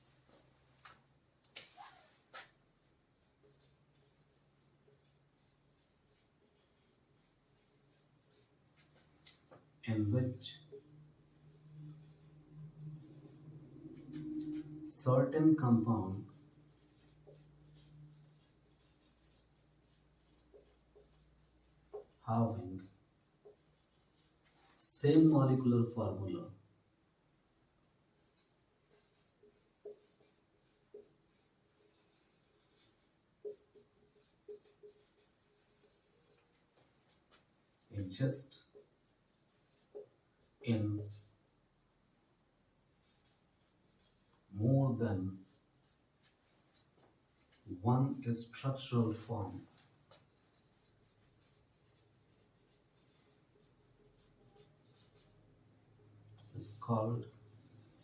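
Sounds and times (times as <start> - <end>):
pen scratching while writing: 1.5 - 9.1, 10.5 - 13.4, 16.2 - 22.2, 28.1 - 37.4, 38.3 - 41.3, 42.9 - 44.5, 45.3 - 46.8, 49.6 - 55.4, 57.4 - 58.0.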